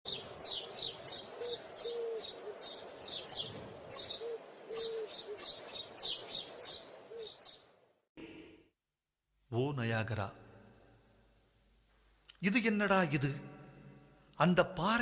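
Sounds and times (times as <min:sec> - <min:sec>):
birds chirping: 0:00.0 - 0:07.8
faint steady hiss: 0:00.1 - 0:08.4, 0:09.4 - 0:14.5.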